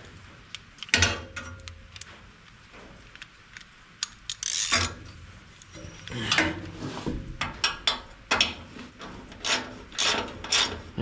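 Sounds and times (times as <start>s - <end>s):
tool scraping and ratcheting: 4.0s - 5.0s, 9.3s - 10.9s.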